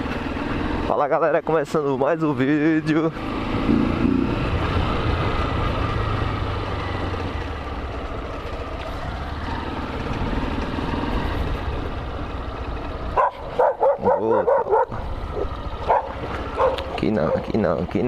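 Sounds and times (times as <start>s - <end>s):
vehicle engine and road noise: 0.0s - 18.0s
dog yipping and barking: 13.2s - 17.5s.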